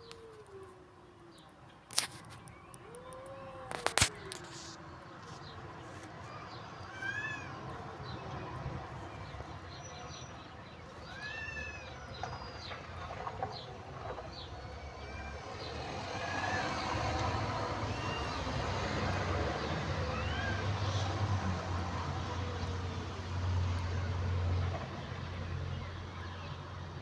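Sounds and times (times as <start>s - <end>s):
cats meowing: 2.8s - 4.6s, 6.2s - 8.2s, 10.9s - 12.7s, 14.7s - 16.8s, 20.0s - 20.7s.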